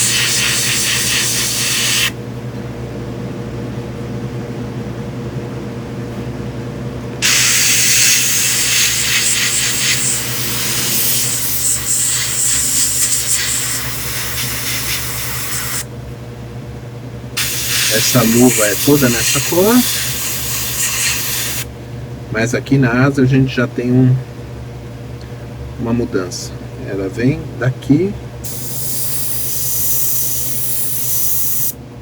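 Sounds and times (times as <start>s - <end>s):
airbrush spraying hiss: 0.0s - 2.1s, 7.2s - 15.8s, 17.4s - 21.7s, 28.5s - 31.8s
airbrush compressor humming: 0.0s - 2.2s, 7.2s - 15.9s, 17.4s - 21.7s, 28.4s - 31.8s.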